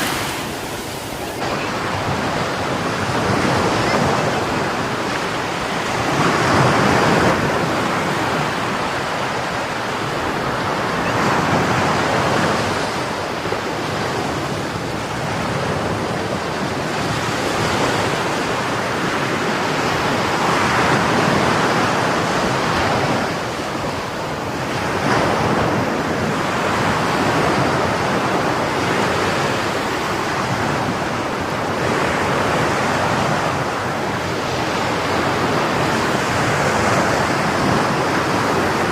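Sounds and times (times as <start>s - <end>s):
sea waves breaking on shore: 0.0s - 38.9s
wind on microphone: 0.0s - 38.9s.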